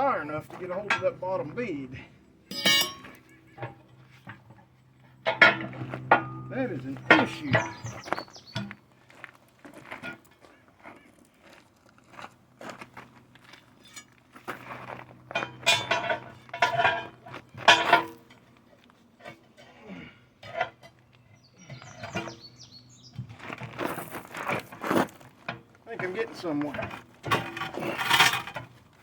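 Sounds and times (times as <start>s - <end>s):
tire iron clinking and scraping: 0.0s - 10.5s, 12.0s - 29.0s.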